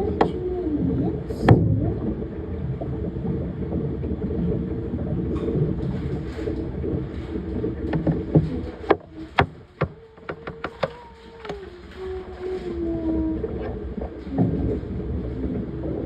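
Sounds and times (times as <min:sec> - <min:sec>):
churning water: 0:00.0 - 0:16.0
washing machine motor hum: 0:00.0 - 0:16.0
washing machine clicks: 0:07.5 - 0:12.1.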